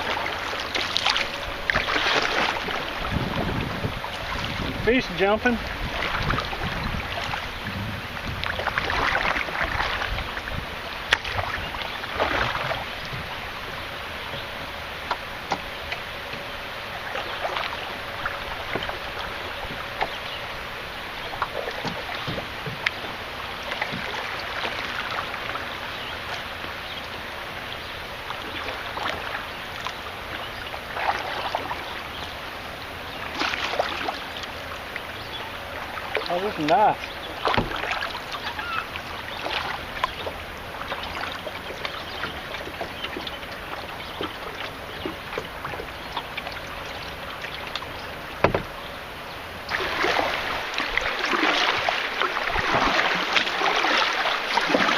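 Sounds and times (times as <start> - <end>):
paddle splashing water: 0.0 - 54.9
canoe knocks: 17.5 - 20.2, 21.3 - 24.8, 36.2 - 38.5, 47.7 - 48.9.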